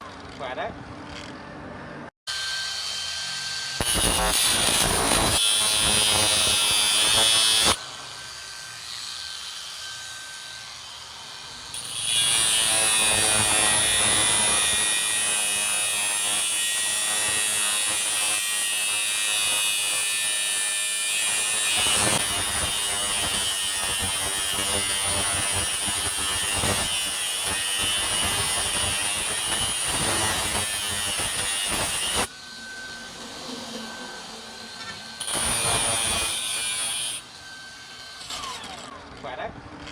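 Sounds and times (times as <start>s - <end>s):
angle grinder whining: 2.3s - 39.9s
grinder cutting through steel: 2.3s - 39.9s.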